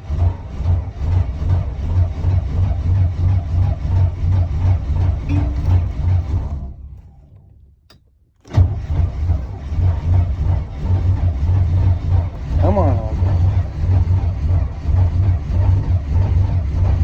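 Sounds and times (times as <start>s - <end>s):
engine running rough: 0.0s - 7.2s, 8.5s - 17.0s
click: 7.0s - 8.6s.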